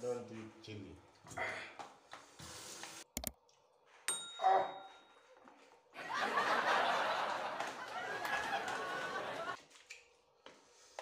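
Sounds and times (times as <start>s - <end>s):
bright ringing ping: 4.1s - 5.1s.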